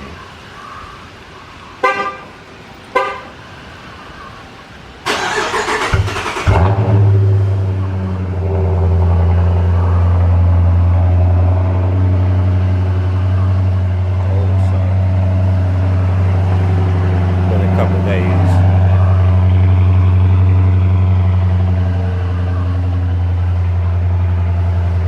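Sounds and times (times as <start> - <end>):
car engine idling deeply: 5.6 - 25.0.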